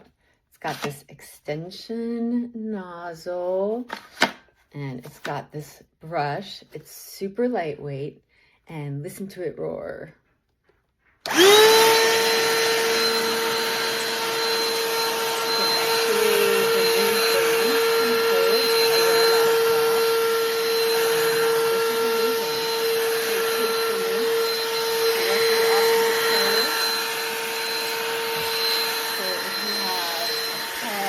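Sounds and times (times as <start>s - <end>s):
handheld vacuum motor whine: 11.2s - 31.0s.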